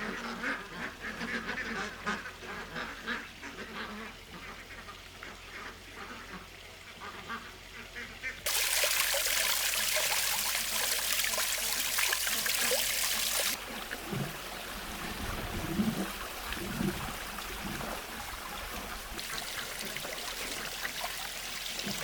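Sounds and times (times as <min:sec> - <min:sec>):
running water splashing: 0:08.5 - 0:22.0.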